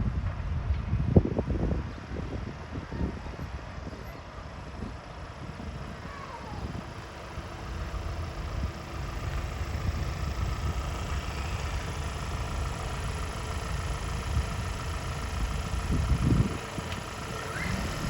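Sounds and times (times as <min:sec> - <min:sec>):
tractor engine running: 0:01.4 - 0:18.0.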